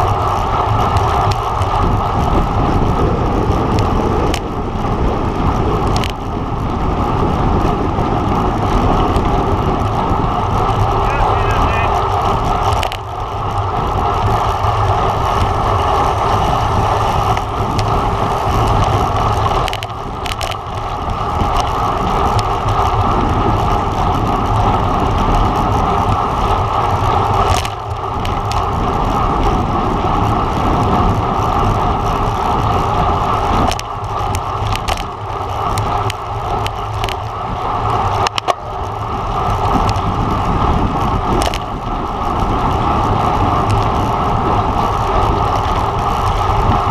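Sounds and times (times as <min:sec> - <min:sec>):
tyre and road noise: 0:00.0 - 0:46.9
wind rushing over microphone: 0:00.0 - 0:46.9.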